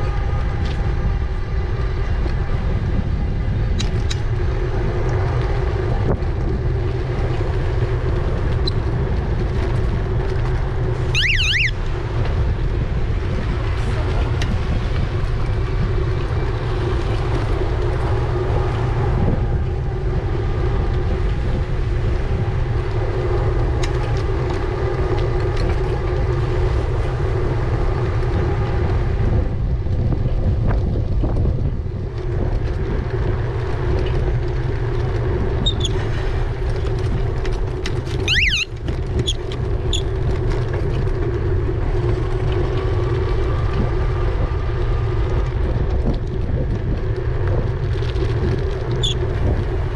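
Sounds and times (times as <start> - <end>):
wind rushing over microphone: 0.0 - 49.9
high rising chirp: 11.2 - 11.7, 38.3 - 38.7
short high notes: 11.2 - 11.7, 38.3 - 38.7.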